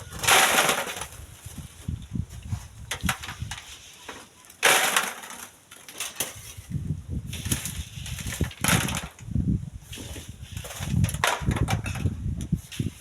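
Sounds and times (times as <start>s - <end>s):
wind buffeting microphone: 1.0s - 3.8s, 6.4s - 13.0s.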